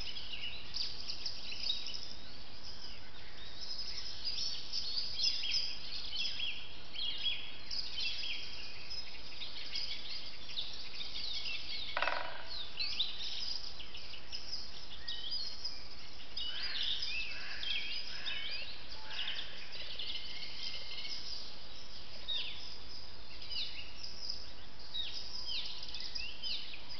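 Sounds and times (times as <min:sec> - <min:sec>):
birds chirping and trilling: 0:00.0 - 0:26.9
low bird call: 0:11.9 - 0:12.8.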